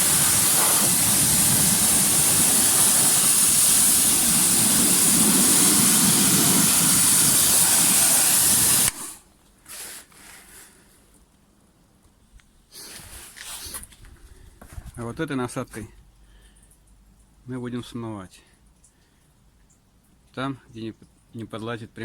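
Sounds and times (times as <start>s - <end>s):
pressure washer jet hissing: 0.0s - 9.2s.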